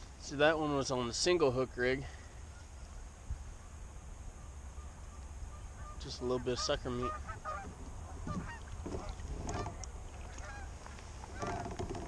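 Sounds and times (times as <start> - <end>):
low wind rumble: 0.0 - 12.0
geese honking: 4.7 - 11.7.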